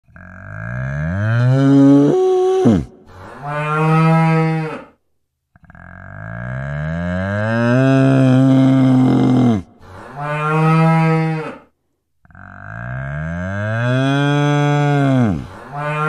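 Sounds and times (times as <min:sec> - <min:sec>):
cow mooing: 0:12.3 - 0:16.0.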